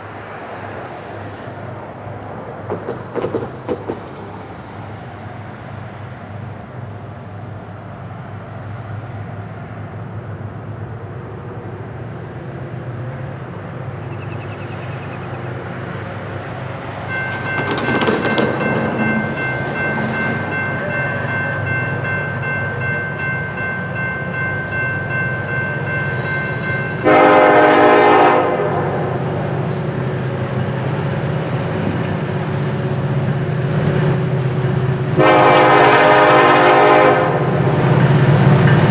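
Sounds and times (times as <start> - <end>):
diesel locomotive engine rumble: 0.0 - 38.9
steady high tone: 18.4 - 27.1
locomotive air horn blast: 26.7 - 29.1, 35.1 - 37.7.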